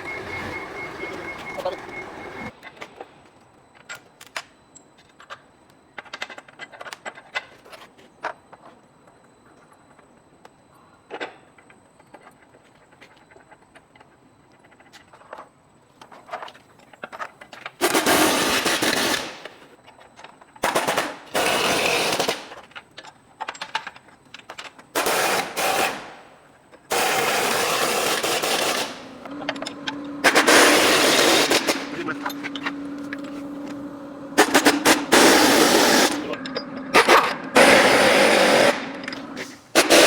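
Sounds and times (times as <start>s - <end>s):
pneumatic impact wrench rattling: 17.7s - 19.6s, 20.6s - 22.8s, 23.5s - 40.0s.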